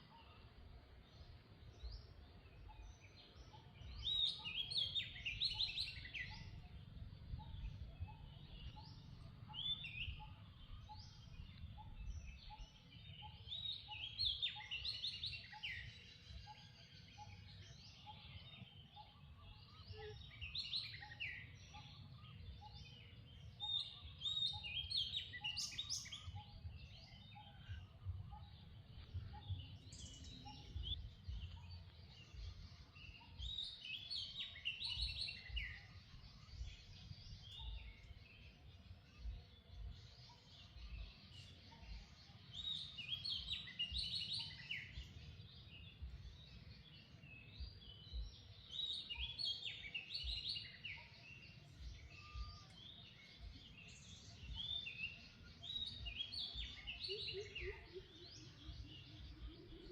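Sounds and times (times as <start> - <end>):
birds chirping and singing: 0.0 - 59.9.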